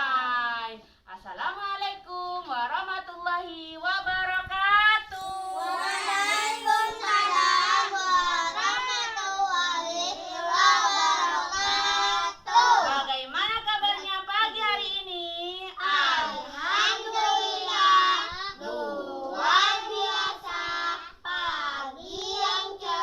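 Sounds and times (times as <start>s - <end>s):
children singing: 5.1s - 12.6s, 15.8s - 23.0s.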